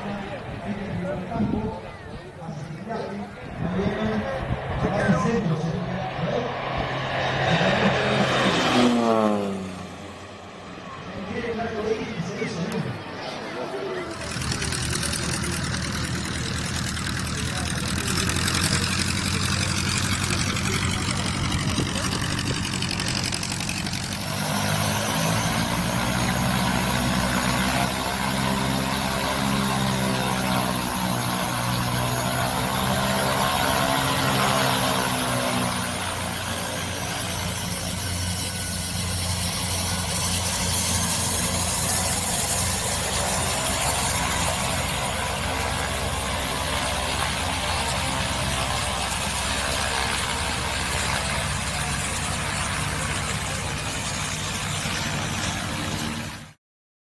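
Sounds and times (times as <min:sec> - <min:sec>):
propeller drone: 0:00.0 - 0:56.6
turboprop turbine whine: 0:00.0 - 0:56.6.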